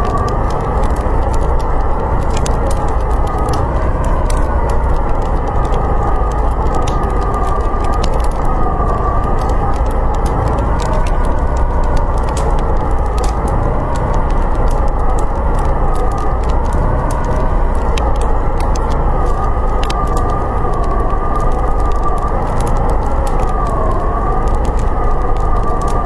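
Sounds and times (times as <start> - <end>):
low rumble: 0.0 - 26.0
wind howling: 0.0 - 26.0
wood fire crackling: 0.0 - 26.0.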